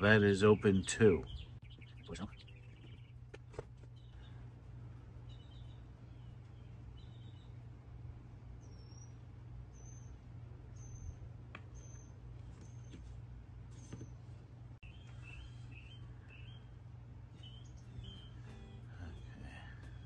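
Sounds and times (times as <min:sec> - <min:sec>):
steady low hum: 0:00.0 - 0:20.0
faint bird chirps: 0:05.2 - 0:07.6, 0:08.5 - 0:16.8, 0:17.4 - 0:20.0.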